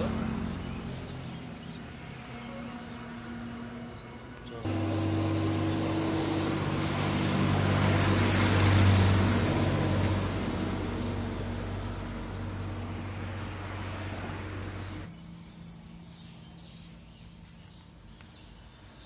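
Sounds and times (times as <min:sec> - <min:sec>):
machine humming: 0:04.6 - 0:15.6.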